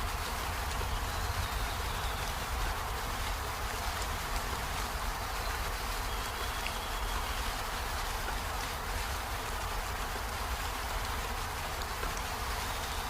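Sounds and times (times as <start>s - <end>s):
rain falling on leaves: 0.0s - 13.0s.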